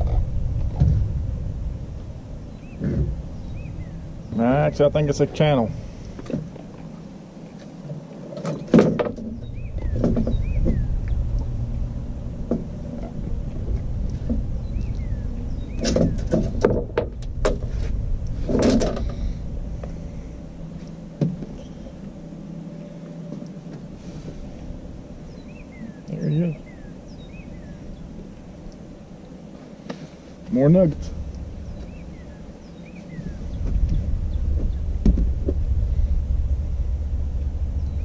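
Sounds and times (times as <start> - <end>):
steady low rumble: 0.0 - 8.3, 9.0 - 38.0
knocks and rattles in boat: 8.3 - 11.6, 15.7 - 19.2, 33.2 - 35.7.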